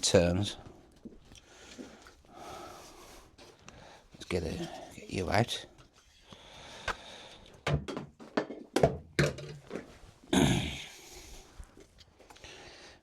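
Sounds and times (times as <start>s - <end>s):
wooden knocks and clunks: 7.6s - 9.9s.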